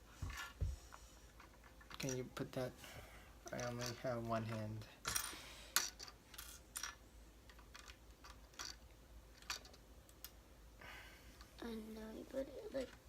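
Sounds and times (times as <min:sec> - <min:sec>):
plastic bricks clicking: 0:05.8 - 0:08.8.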